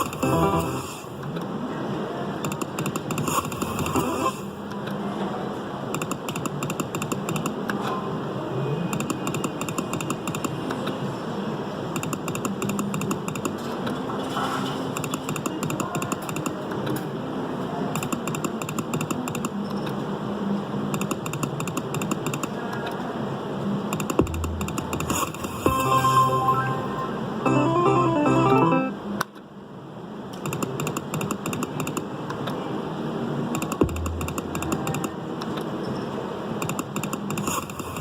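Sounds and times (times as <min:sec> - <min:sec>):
rapid electronic ticking: 0:24.0 - 0:26.0, 0:33.6 - 0:35.1
short beeping tones: 0:24.2 - 0:29.0.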